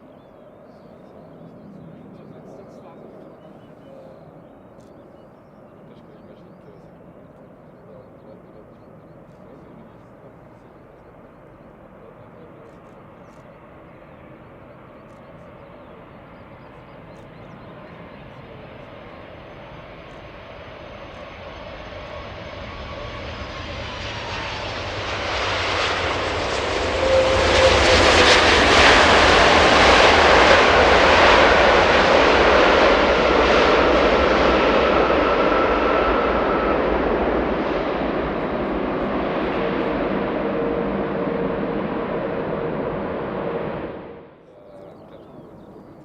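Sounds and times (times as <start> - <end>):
jet airliner flying past: 0.0 - 46.0
jet engine whine: 0.0 - 46.0.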